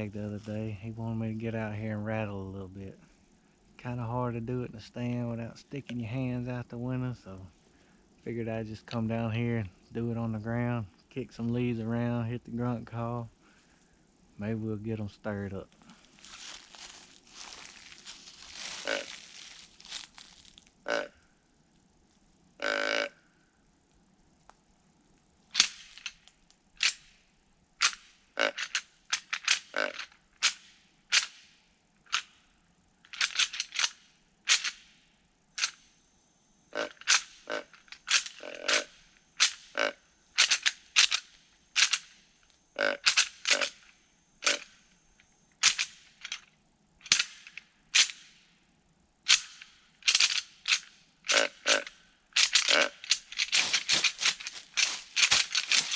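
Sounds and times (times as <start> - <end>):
rattling bag clacking: 52.4 - 55.9.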